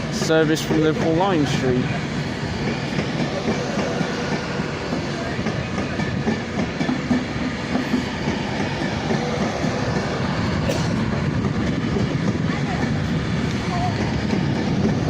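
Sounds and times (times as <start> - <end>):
electric train running noise: 0.0 - 15.0.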